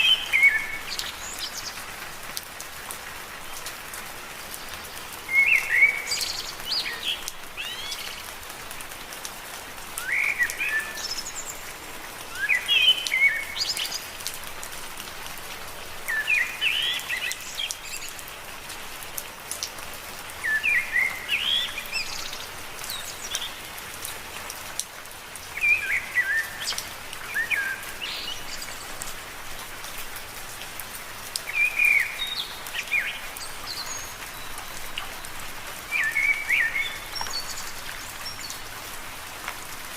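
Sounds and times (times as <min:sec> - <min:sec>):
songbird chirping: 0:00.0 - 0:01.9, 0:04.6 - 0:08.3, 0:31.4 - 0:38.8
rain pattering on leaves: 0:00.0 - 0:39.9.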